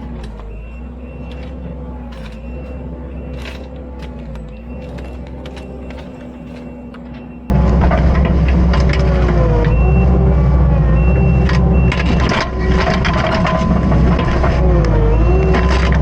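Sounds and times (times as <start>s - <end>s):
diesel engine hum: 0.0s - 16.0s
hydraulic whine: 0.0s - 16.0s.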